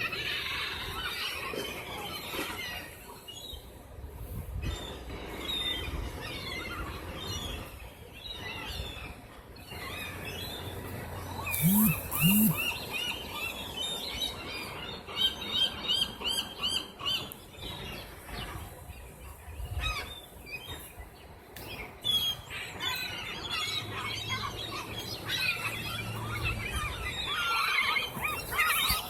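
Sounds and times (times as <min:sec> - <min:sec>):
gulls calling: 0:11.5 - 0:13.5.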